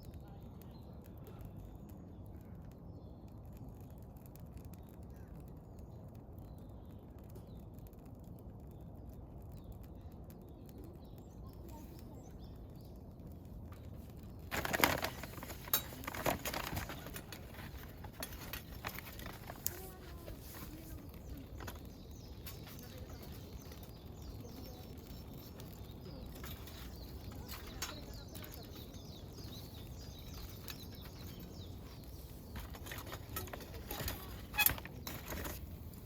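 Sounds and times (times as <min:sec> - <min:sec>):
faint birdsong: 0:00.0 - 0:36.0.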